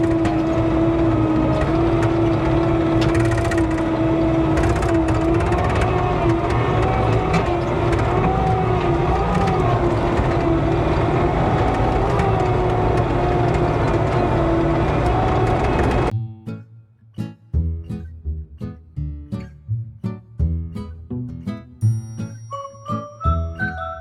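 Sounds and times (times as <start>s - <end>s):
skid steer engine running: 0.0s - 16.1s
strummed acoustic guitar music: 0.0s - 24.0s.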